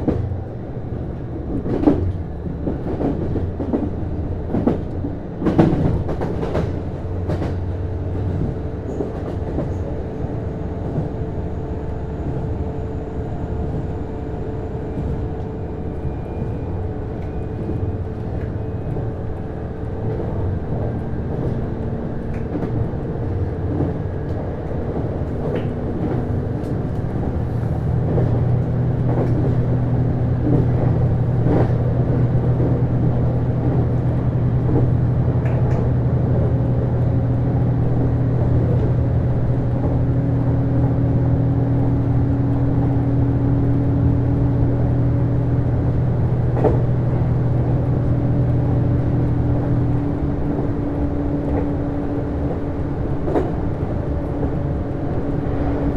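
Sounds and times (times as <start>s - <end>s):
train engine drone: 0.0s - 55.9s.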